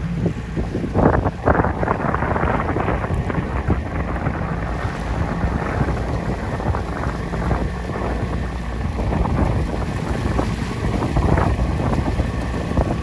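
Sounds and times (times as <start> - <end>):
boat engine running: 0.0 - 13.0
wind buffeting microphone: 0.0 - 13.0.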